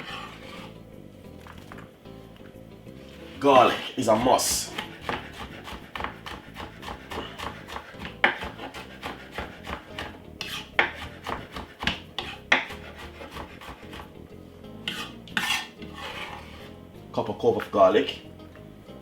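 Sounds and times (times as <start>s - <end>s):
garlic being grated: 0.0s - 0.8s, 3.2s - 14.2s, 14.8s - 16.8s.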